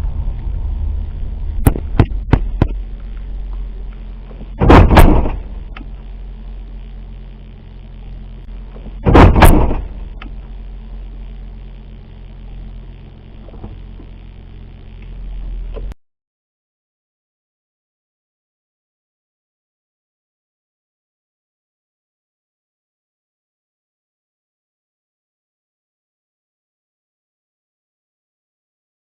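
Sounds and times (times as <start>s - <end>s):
vehicle cabin rumble: 0.0s - 16.0s
loud double bangs: 4.6s - 5.6s, 9.0s - 10.1s.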